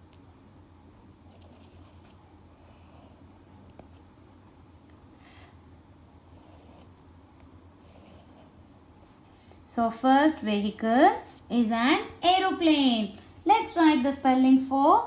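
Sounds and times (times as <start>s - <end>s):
steady low hum: 0.0s - 15.0s
pen scratching on paper: 1.3s - 4.2s, 6.2s - 7.0s, 7.8s - 8.7s.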